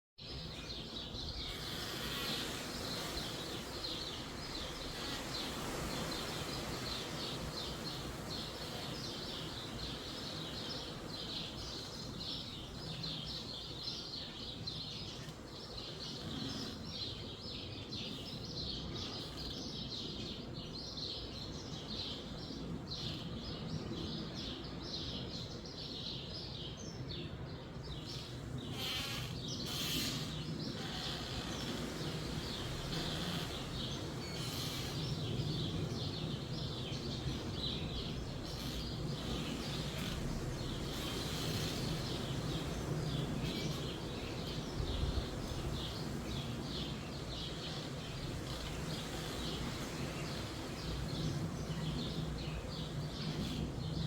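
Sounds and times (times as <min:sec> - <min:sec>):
low rumble of wind: 0:00.2 - 0:54.0
small birds chirping: 0:00.2 - 0:54.0.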